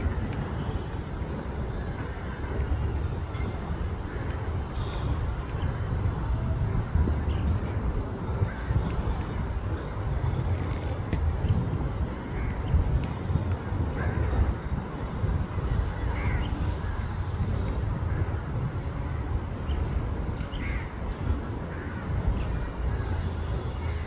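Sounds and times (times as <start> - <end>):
steady low rumble: 0.0 - 24.0
crow cawing: 16.2 - 16.4.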